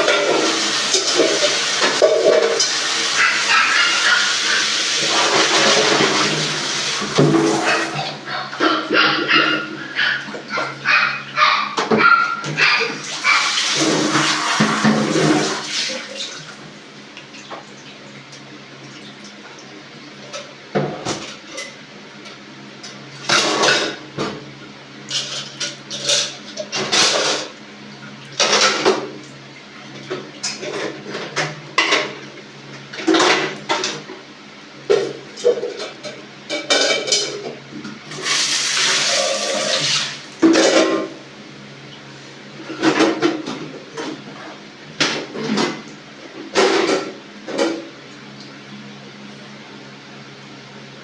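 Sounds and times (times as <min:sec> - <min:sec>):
dishes clattering: 0:00.0 - 0:15.6, 0:23.2 - 0:24.4, 0:28.4 - 0:29.1, 0:30.1 - 0:32.2, 0:34.9 - 0:37.6, 0:39.0 - 0:41.2
running water splashing: 0:00.0 - 0:19.7, 0:38.1 - 0:40.9.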